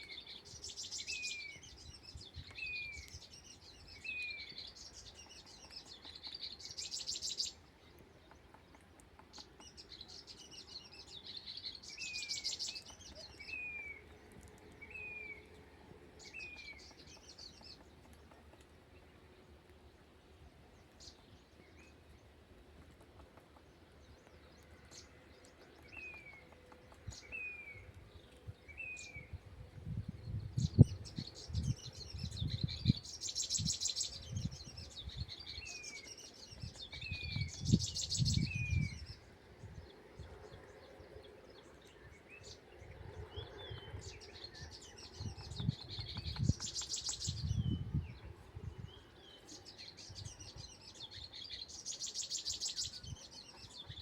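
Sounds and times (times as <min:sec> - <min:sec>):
small bird chirping: 0:00.0 - 0:14.1, 0:43.7 - 0:48.2, 0:49.0 - 0:54.0.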